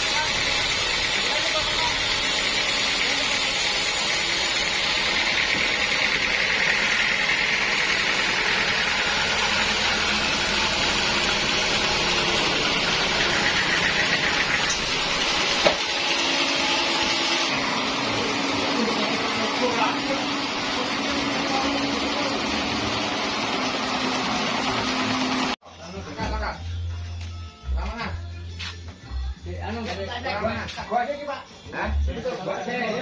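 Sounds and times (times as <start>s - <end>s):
saw cutting through log: 0.0s - 25.6s.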